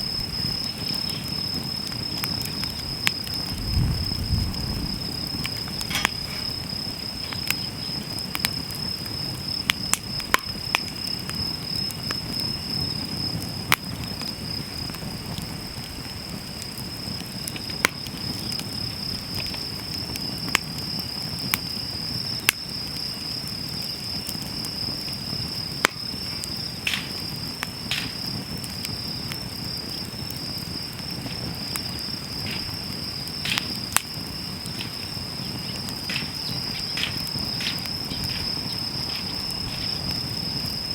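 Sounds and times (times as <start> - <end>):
insect trilling: 0.0 - 11.1, 24.6 - 40.9
wood fire crackling and popping: 0.0 - 40.9.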